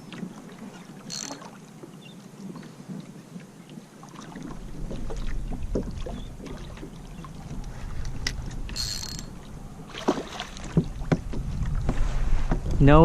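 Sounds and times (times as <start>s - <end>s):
water sloshing around kayak: 0.0s - 12.6s
wind rumble on microphone: 4.5s - 9.9s, 10.5s - 13.0s
knocks and clicks on hull: 4.8s - 12.8s.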